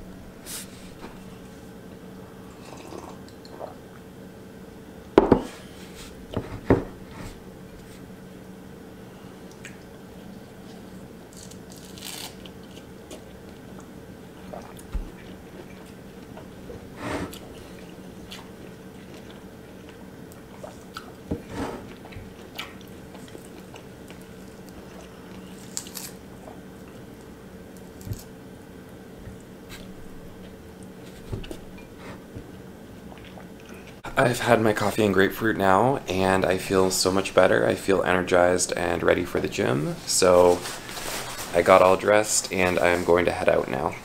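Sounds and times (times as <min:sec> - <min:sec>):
low steady hum: 0:00.0 - 0:44.0
wet tearing: 0:11.3 - 0:12.6, 0:25.6 - 0:26.2
fruit being pulled apart: 0:11.3 - 0:12.9, 0:25.6 - 0:26.2.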